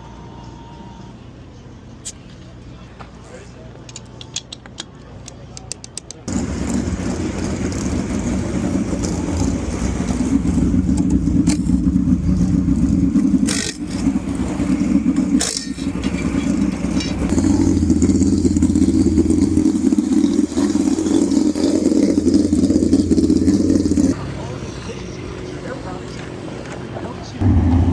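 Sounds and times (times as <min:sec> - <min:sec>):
race car engine running hard: 0:06.3 - 0:27.9.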